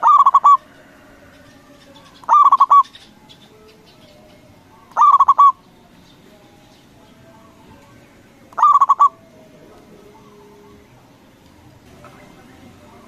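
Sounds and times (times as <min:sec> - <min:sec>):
faint bird calls: 0:00.0 - 0:06.2, 0:07.3 - 0:11.0
dove singing clipped notes: 0:00.0 - 0:13.0.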